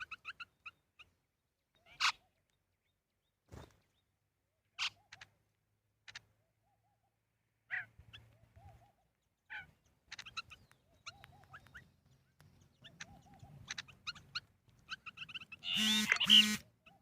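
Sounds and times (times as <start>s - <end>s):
birds chirping: 0.0s - 17.0s
loud bird call: 15.3s - 17.0s.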